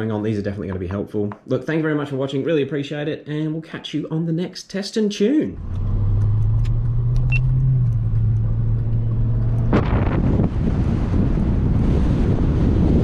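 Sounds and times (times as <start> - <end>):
vehicle engine hum: 5.6 - 12.6
wind buffeting microphone: 8.0 - 13.0.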